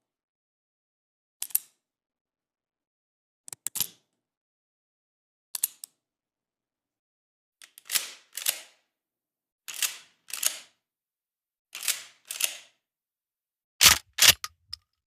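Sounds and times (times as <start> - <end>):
sharp mechanical clicks: 13.8 - 14.8.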